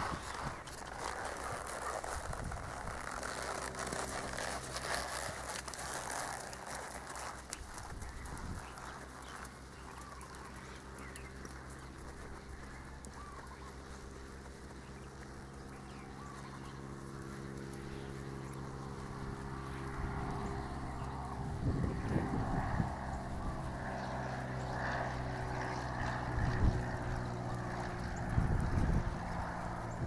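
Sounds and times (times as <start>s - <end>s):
steady low hum: 0.0s - 30.0s
bird calling: 7.0s - 18.7s.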